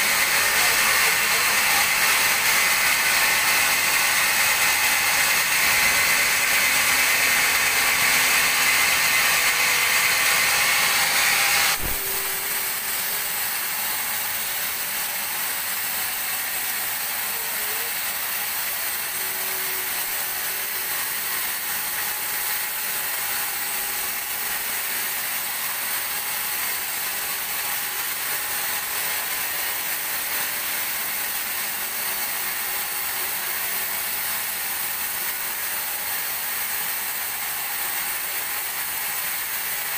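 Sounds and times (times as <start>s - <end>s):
band saw cutting log: 0.0s - 39.9s
steady machine noise: 0.0s - 39.9s
knock: 11.7s - 12.4s.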